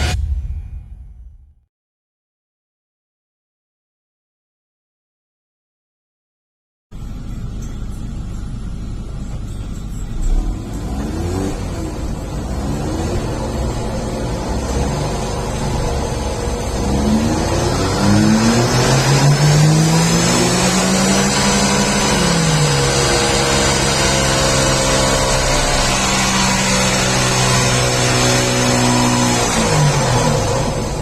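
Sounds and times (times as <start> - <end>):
car engine revving: 9.8 - 31.0.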